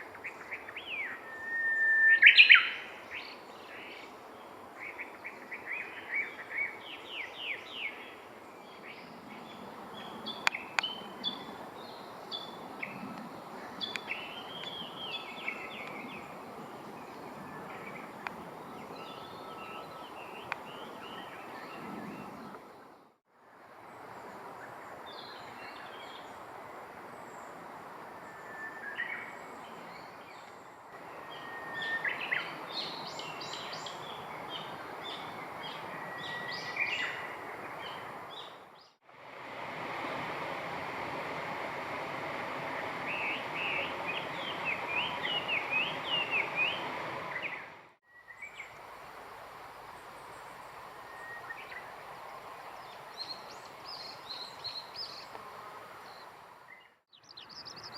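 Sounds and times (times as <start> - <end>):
small birds singing and chirping: 0.2 - 22.8, 28.4 - 39.0, 43.1 - 48.7, 52.7 - 55.4, 56.0 - 57.9
steady rushing noise: 39.0 - 48.0.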